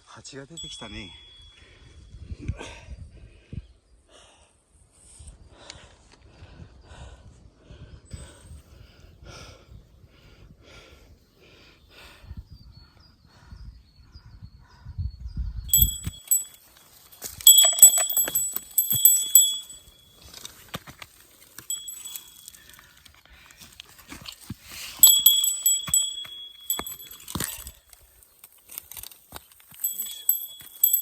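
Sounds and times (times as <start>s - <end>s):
small metal bell jingling: 0.6s - 1.7s, 15.7s - 20.2s, 21.6s - 22.9s, 25.0s - 27.9s, 29.7s - 31.0s.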